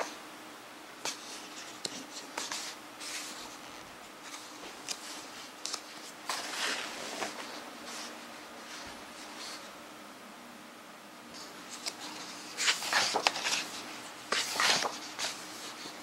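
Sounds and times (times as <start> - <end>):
book pages rustling and turning: 1.0 - 9.7, 11.4 - 16.0.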